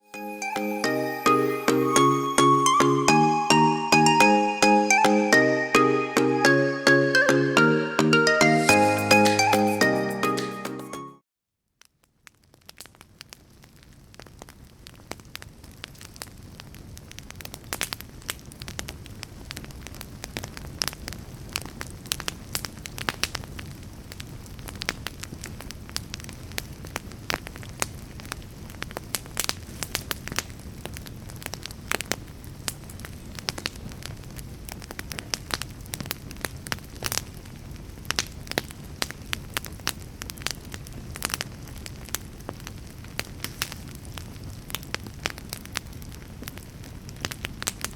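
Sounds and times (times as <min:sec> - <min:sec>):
fire crackling and popping: 0:11.8 - 0:47.9.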